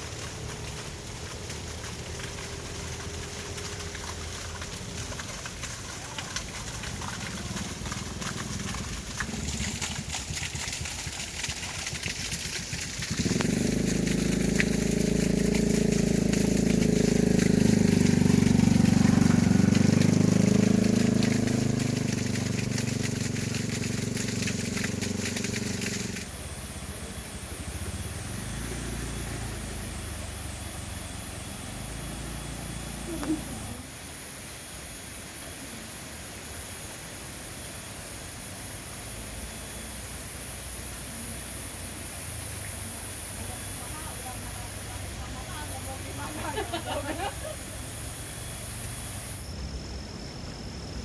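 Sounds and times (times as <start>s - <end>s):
water dripping: 0.0s - 26.3s
light rain hissing: 0.0s - 33.9s, 39.1s - 51.0s
engine running: 0.0s - 35.4s, 39.1s - 51.0s.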